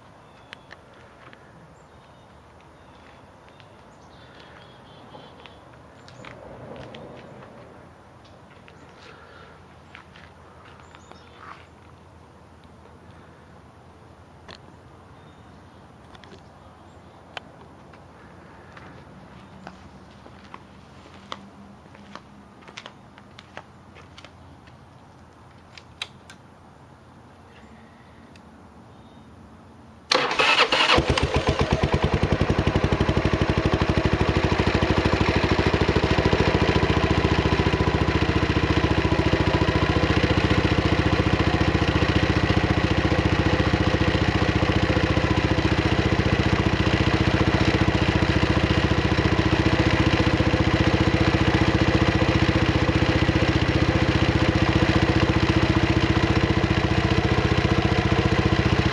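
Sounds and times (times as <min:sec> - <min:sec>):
click: 0:25.8 - 0:26.4
motorcycle engine starting and idling: 0:30.1 - 0:58.9.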